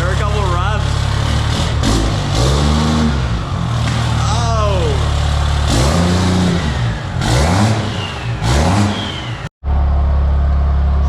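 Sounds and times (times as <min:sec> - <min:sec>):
diesel engine idling: 0:00.0 - 0:07.4, 0:08.1 - 0:11.0
diesel engine revving: 0:00.0 - 0:11.0.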